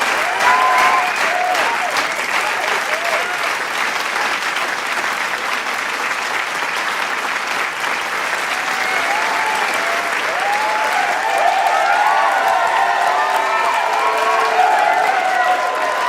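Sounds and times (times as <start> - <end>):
voices calling out and cheering: 0.0 - 3.4, 8.6 - 16.0
crowd applauding: 0.0 - 16.0.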